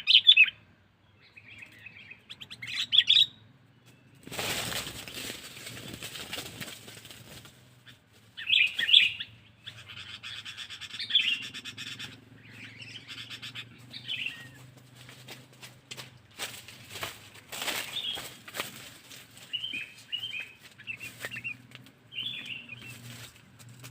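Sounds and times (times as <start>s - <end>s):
bird chirping: 0.0s - 5.1s, 7.8s - 15.1s, 17.8s - 23.6s
rustling noise: 4.2s - 8.4s, 14.4s - 23.9s.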